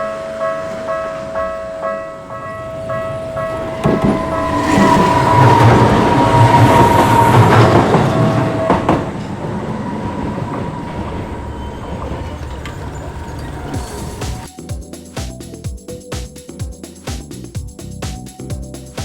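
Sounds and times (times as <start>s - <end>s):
high whine: 0.0s - 14.7s
train wheels running: 0.0s - 15.9s.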